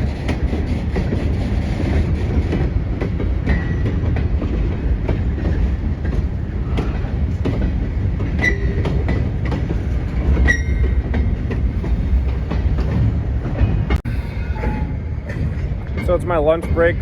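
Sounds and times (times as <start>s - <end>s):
freight train rumble: 0.0s - 17.0s
wheels clanking over rail joints: 0.0s - 17.0s
high-pitched wheel squeals: 8.4s - 9.0s, 10.4s - 11.0s.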